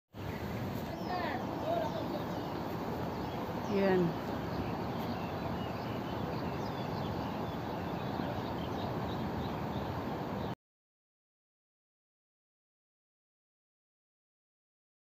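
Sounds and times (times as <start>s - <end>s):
outdoor background noise: 0.1s - 10.6s
small birds chirping: 0.2s - 10.6s.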